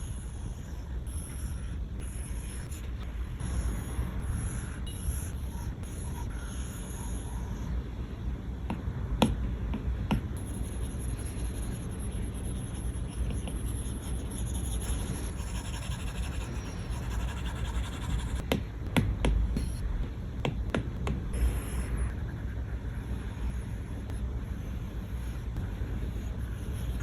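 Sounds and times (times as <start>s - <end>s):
low steady rumble: 0.0s - 27.0s.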